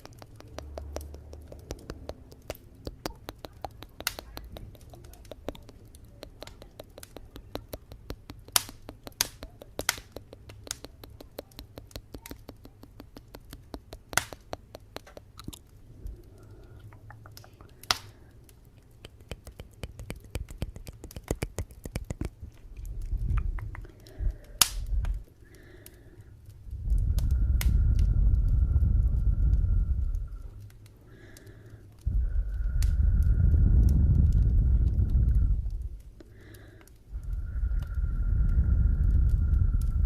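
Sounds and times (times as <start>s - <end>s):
wood fire crackling and popping: 0.0s - 40.0s
loud low rumble: 26.7s - 30.7s, 32.1s - 36.0s, 37.2s - 40.0s.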